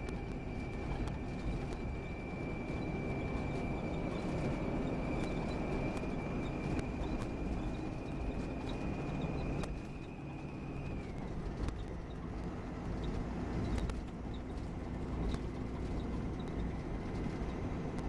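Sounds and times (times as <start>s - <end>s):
coach engine and road rumble: 0.0s - 18.0s
sharp clicks and rattles: 5.2s - 18.0s.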